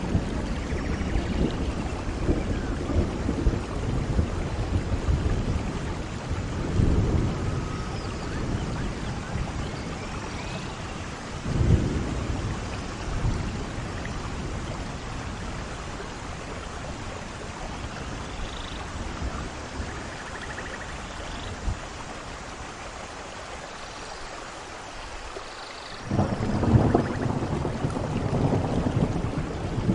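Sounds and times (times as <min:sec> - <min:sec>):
thunder rolling: 0:00.0 - 0:10.2, 0:26.0 - 0:29.9
steady rain: 0:00.0 - 0:29.9.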